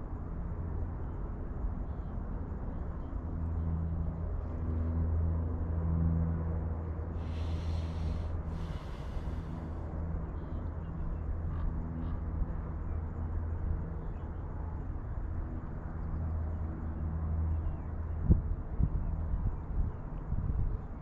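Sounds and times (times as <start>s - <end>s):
low engine drone: 3.2s - 18.2s.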